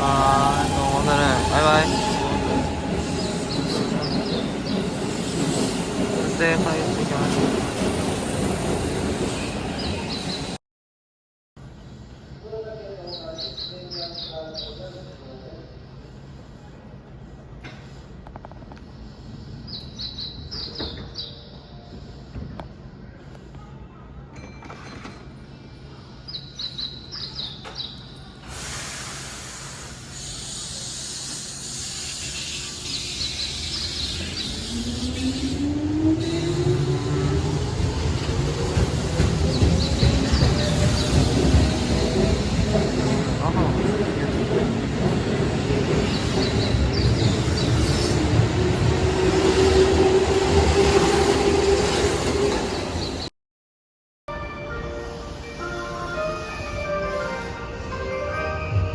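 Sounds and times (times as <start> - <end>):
electric train running on rails: 0.0 - 10.6, 28.4 - 53.3
high wheel squeals: 0.3 - 5.9
small birds chirping: 2.8 - 5.1, 37.1 - 48.5
loud steady hiss: 28.4 - 34.5.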